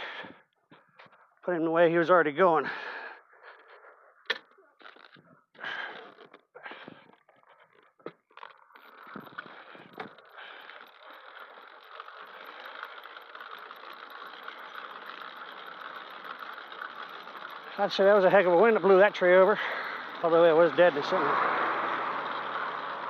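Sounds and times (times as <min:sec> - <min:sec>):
small bicycle engine running: 0:04.8 - 0:23.0.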